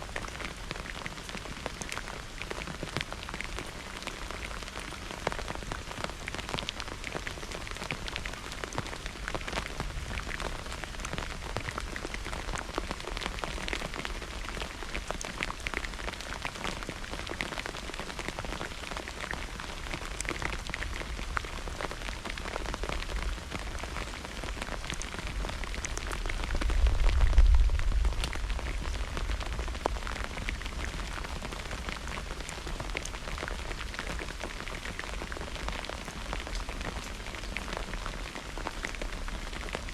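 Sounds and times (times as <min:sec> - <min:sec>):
heavy rain pattering: 0:00.0 - 0:39.9
low rumble: 0:26.5 - 0:30.6.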